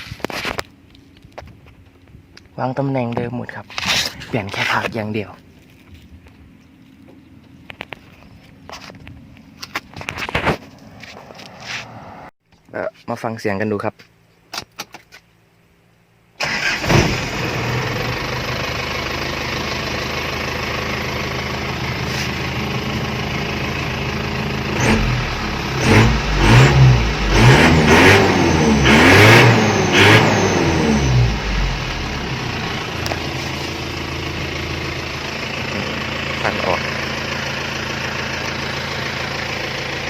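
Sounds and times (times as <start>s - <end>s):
engine revving: 16.4s - 19.0s, 24.3s - 39.8s
engine idling: 16.4s - 29.0s, 29.6s - 40.0s
pickup engine starting: 16.4s - 40.0s.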